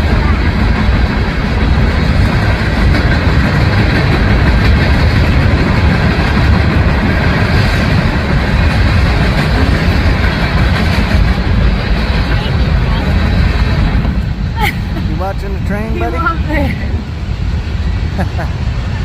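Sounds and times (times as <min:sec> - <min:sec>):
wheels clicking over rail joints: 0:00.0 - 0:14.2
freight train rumbling: 0:00.0 - 0:19.0.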